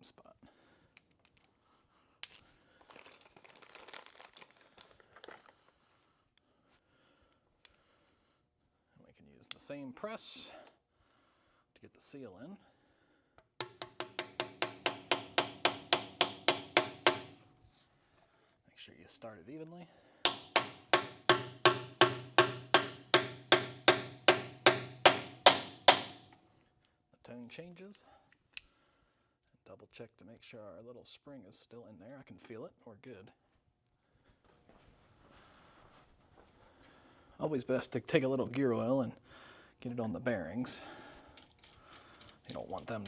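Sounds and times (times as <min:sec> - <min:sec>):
rustling and crinkling: 0:02.4 - 0:06.0
hammer striking metal: 0:13.6 - 0:17.5, 0:20.3 - 0:26.4.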